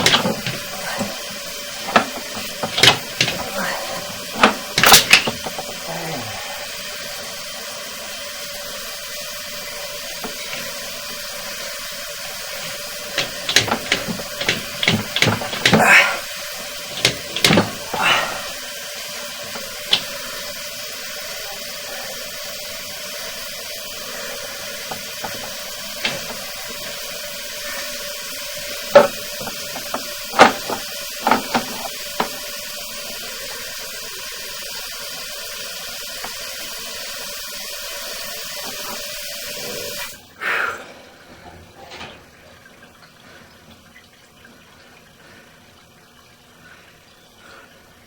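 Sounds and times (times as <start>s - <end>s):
water running: 0.0s - 48.0s
sharp knocks: 28.9s - 32.3s.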